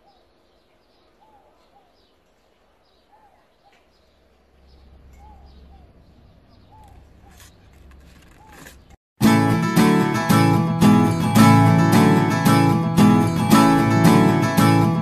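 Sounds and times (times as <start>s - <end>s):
faint bird chirping: 0.0s - 9.0s.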